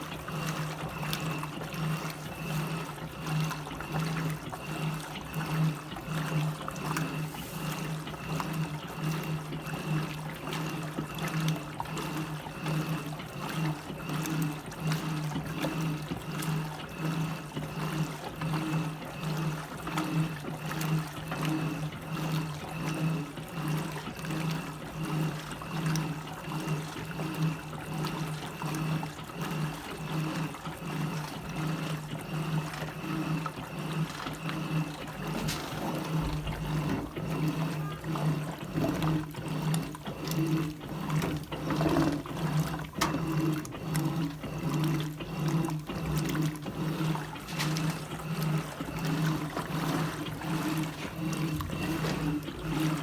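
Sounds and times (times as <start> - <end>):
washing machine motor hum: 0.0 - 53.0
water sloshing: 0.0 - 53.0.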